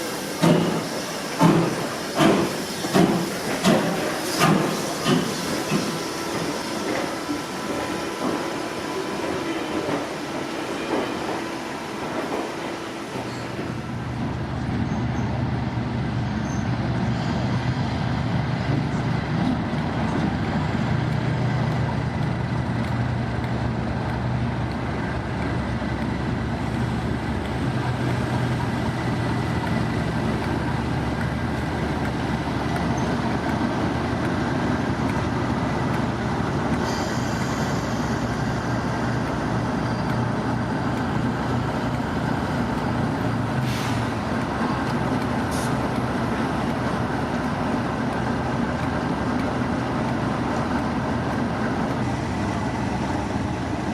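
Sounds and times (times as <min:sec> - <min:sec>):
train rumbling: 0:00.0 - 0:53.9.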